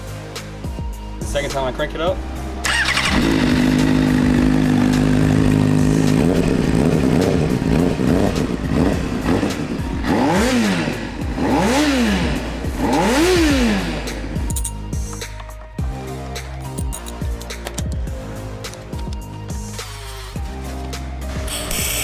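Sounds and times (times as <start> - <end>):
motorcycle engine revving: 1.8 - 14.6.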